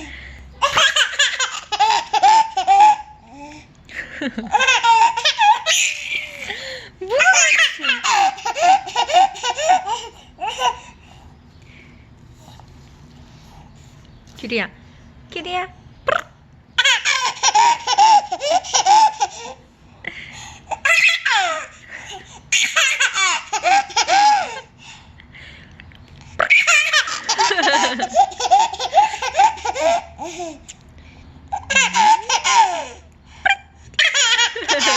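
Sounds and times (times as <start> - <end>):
child laughing: 4.1 - 10.8, 26.4 - 30.3, 31.5 - 34.9.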